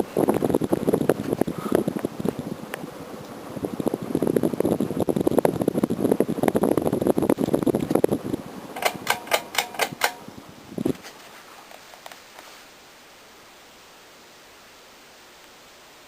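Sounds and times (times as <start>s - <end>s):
ceiling fan fluttering air: 0.0s - 16.0s
sharp clicks: 8.8s - 10.2s
faint hiss: 10.2s - 16.0s.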